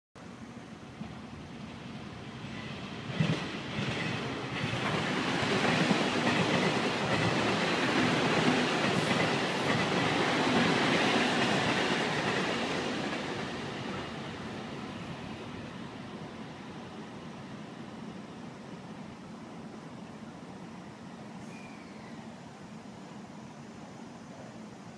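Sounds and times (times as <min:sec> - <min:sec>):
train wheels clattering over track: 0:02.4 - 0:15.5.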